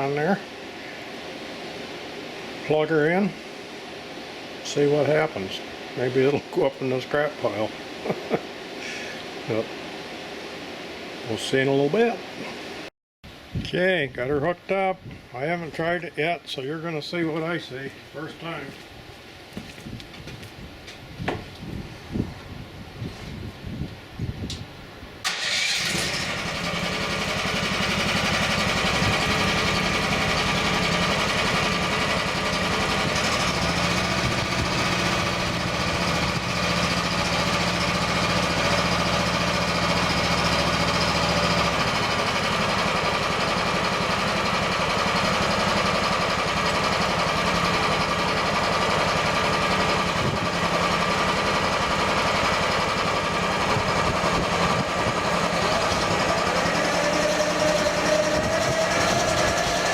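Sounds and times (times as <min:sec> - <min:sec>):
excavator engine running: 0:25.2 - 0:59.9
hydraulic mower blade spinning: 0:25.3 - 0:59.9.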